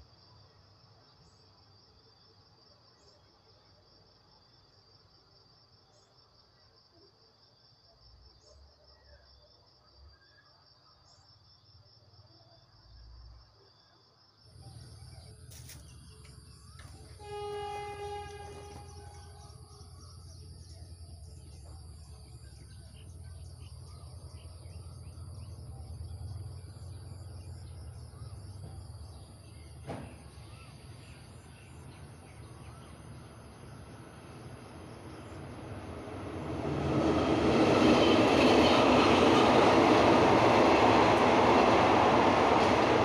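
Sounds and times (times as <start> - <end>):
crickets chirping: 0.0 - 43.0
high insect whine: 14.5 - 43.0
diesel train rumbling: 14.6 - 43.0
train horn blast: 16.8 - 19.7.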